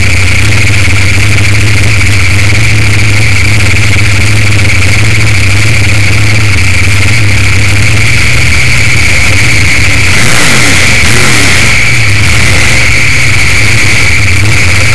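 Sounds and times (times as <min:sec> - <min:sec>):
loud car engine running: 0:00.0 - 0:14.9.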